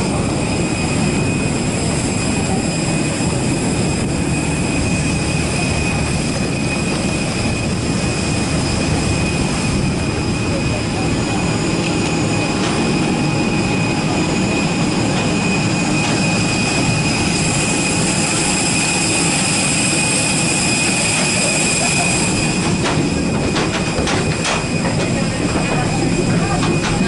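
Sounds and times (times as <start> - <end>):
jet airliner roar and whine: 0.0 - 27.0.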